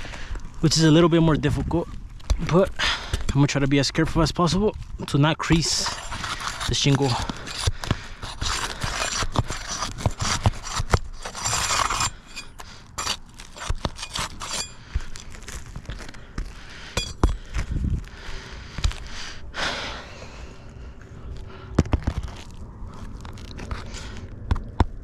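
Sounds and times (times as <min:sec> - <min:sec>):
shingles scraping and crackling: 0:05.4 - 0:17.5.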